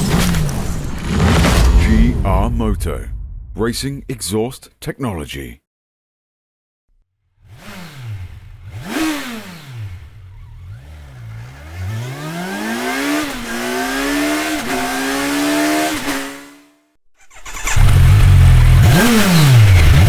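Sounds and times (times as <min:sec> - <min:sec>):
motorcycle engine revving: 0:07.4 - 0:20.0.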